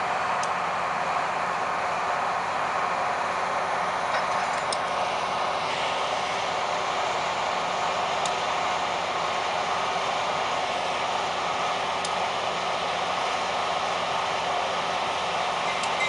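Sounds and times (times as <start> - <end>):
moving train running noise: 0.0 - 16.0.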